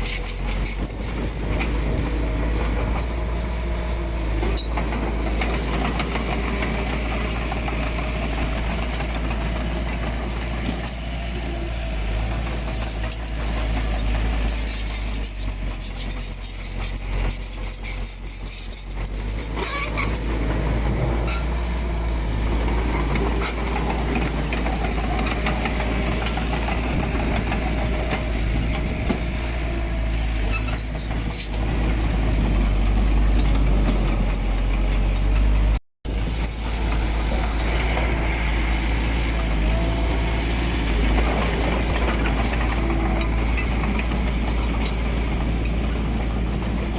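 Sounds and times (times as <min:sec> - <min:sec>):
diesel engine rumbling: 0:00.0 - 0:46.9
light metallic clicks and squeaks: 0:12.6 - 0:20.5, 0:30.4 - 0:37.9.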